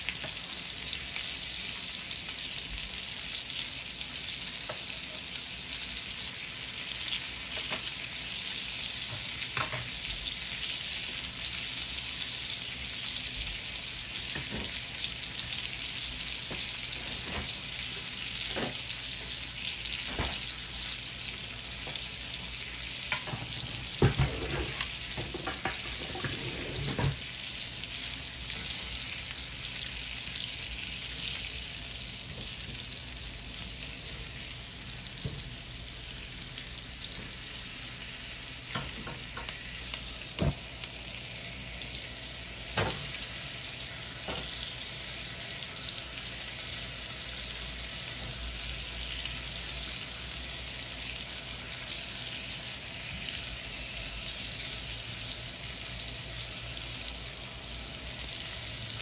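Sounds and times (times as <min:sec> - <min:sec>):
onions sizzling on grill pan: 0:00.0 - 0:59.0
spatula scraping pan: 0:23.5 - 0:27.2.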